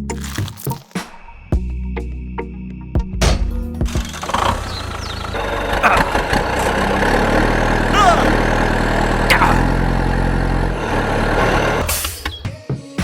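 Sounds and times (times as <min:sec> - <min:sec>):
engine idling hum: 0:03.7 - 0:12.0.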